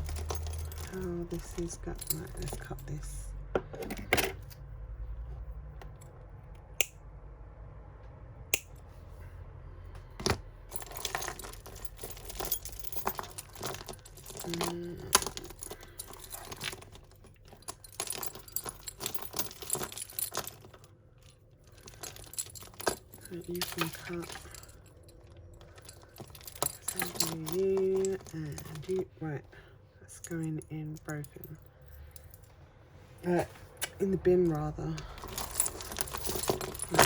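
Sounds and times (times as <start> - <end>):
jewellery chains jingling: 0.0 - 4.5, 10.6 - 29.5, 33.2 - 37.0.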